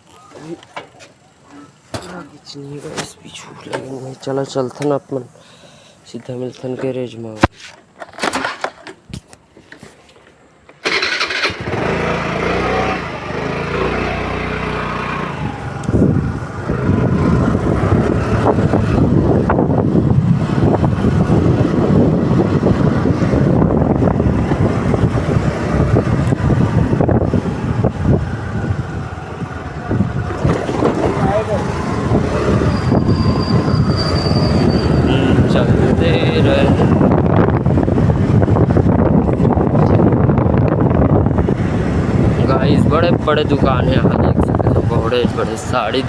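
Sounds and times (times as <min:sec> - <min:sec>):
road and wind noise: 0:00.0 - 0:46.0
scooter engine starting and running: 0:10.7 - 0:46.0.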